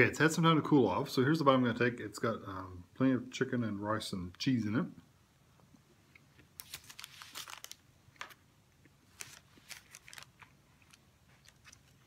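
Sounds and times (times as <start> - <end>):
faint wet chewing: 8.8 - 12.0.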